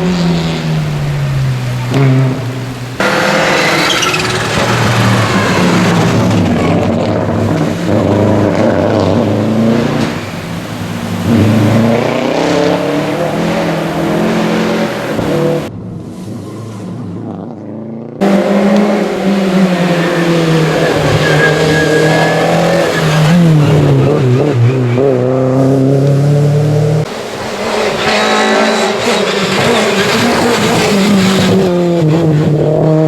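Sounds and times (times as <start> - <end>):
rally car engines revving: 0.0 - 33.0.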